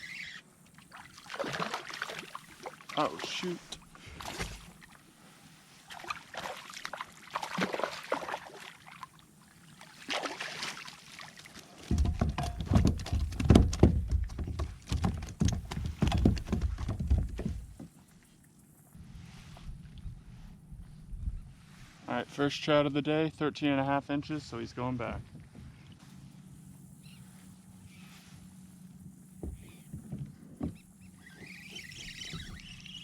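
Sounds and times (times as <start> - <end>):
water splashes: 0.8 - 17.8
knocks and rattles in kayak: 11.7 - 18.1, 29.3 - 33.0
rapid heavy thumps: 11.9 - 17.9, 29.4 - 30.9
low rumbling: 19.0 - 22.1.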